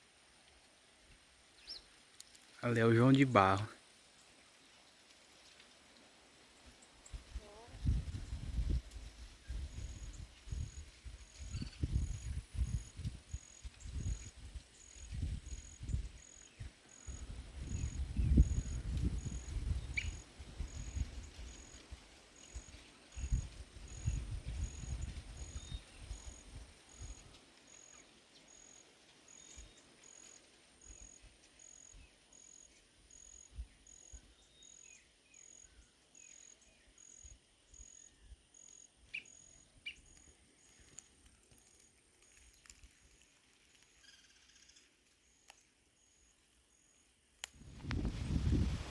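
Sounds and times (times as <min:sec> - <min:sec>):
insect chirping: 0:06.4 - 0:48.9
wind buffeting microphone: 0:07.2 - 0:21.7, 0:23.1 - 0:27.3, 0:47.6 - 0:48.9.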